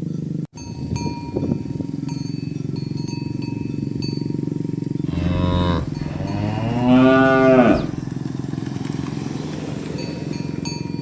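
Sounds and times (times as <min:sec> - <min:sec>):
cow mooing: 0:05.1 - 0:08.1.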